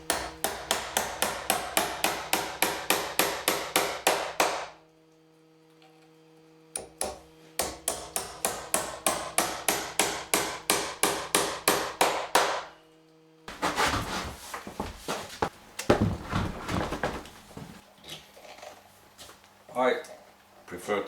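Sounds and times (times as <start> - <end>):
hammer driving nails into wood: 0.1 - 4.8, 6.8 - 12.7
knocks and handling noise: 13.5 - 17.8.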